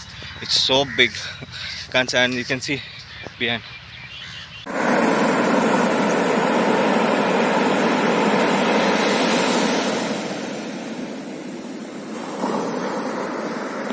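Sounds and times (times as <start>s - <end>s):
wind: 0.0s - 13.9s
sea surf: 4.7s - 13.9s.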